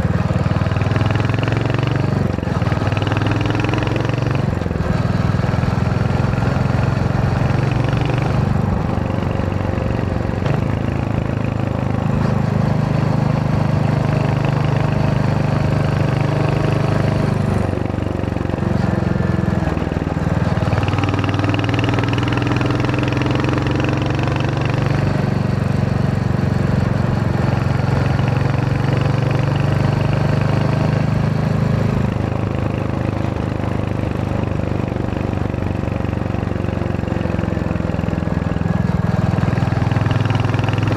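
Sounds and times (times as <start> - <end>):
motorcycle engine thumping: 1.9 - 22.9.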